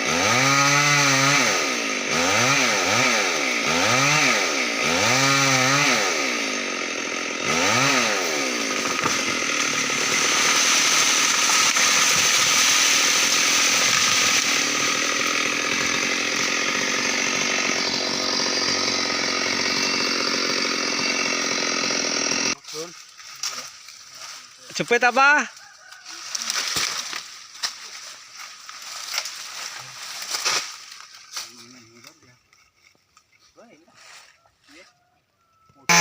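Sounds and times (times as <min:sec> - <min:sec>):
chainsaw revving: 0:00.0 - 0:22.6.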